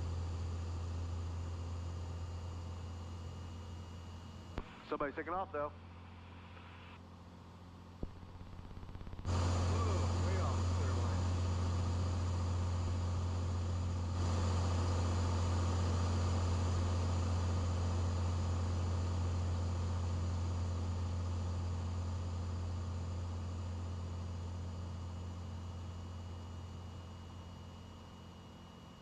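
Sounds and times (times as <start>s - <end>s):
plane engine and propeller droning: 7.1s - 29.0s.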